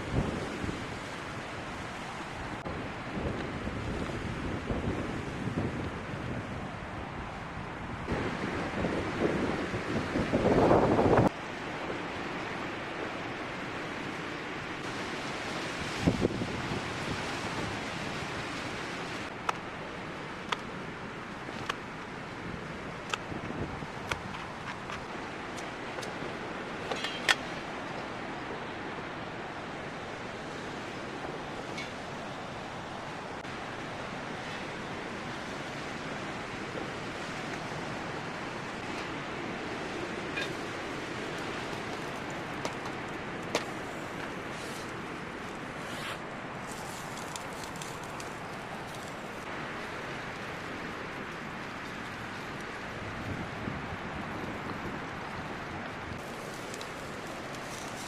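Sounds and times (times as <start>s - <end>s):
strong wind blowing: 0.0s - 26.8s, 27.4s - 58.0s.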